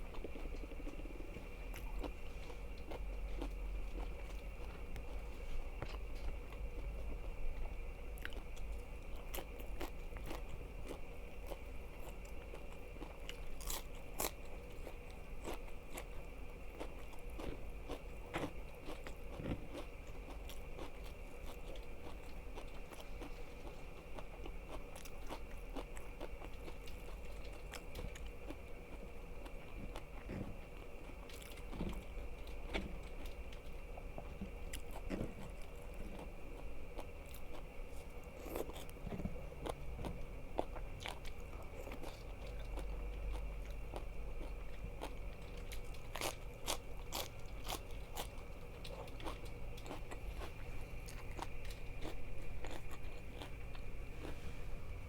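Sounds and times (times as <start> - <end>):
crunchy food chewed: 0.0 - 55.0
faint steady hum: 0.0 - 55.0.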